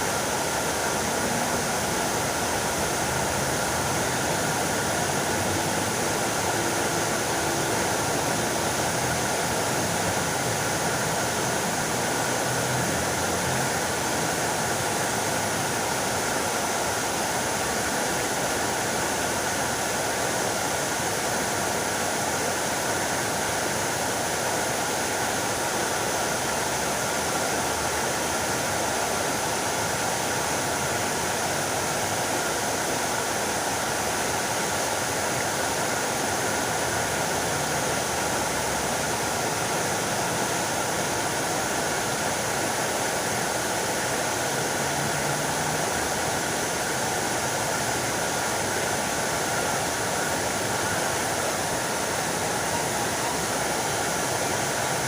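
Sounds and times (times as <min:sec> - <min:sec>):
fountain water splashing: 0:00.0 - 0:55.0.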